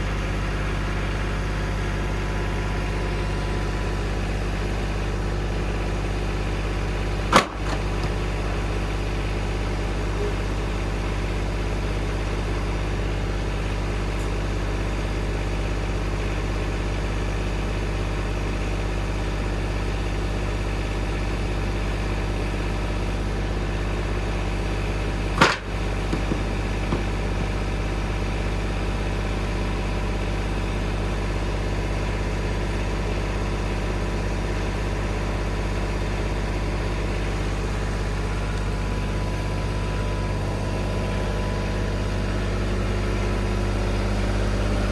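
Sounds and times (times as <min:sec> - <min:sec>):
engine idling: 0:00.0 - 0:44.9
sharp knocks: 0:07.3 - 0:08.2, 0:25.4 - 0:27.6.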